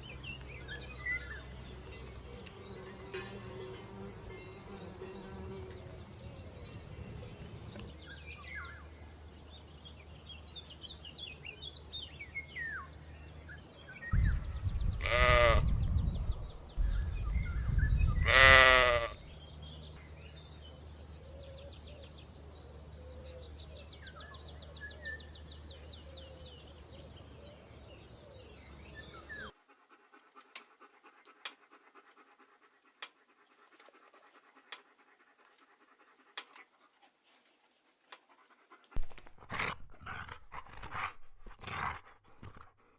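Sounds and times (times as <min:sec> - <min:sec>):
goat bleating: 0:15.0 - 0:15.7, 0:18.2 - 0:19.2.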